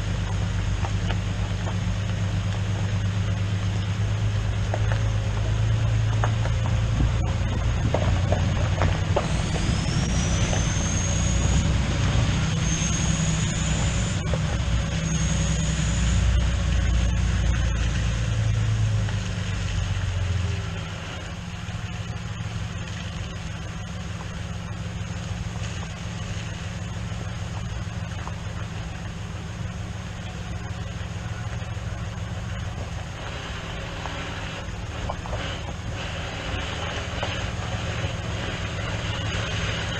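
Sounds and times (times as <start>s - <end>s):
vehicle engine running: 0.0s - 39.9s
high whine rising in pitch: 5.5s - 21.5s.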